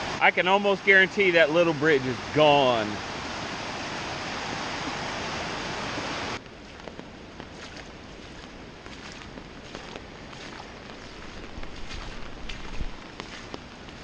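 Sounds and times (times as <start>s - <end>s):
floodwater rushing in creek: 0.0s - 14.0s.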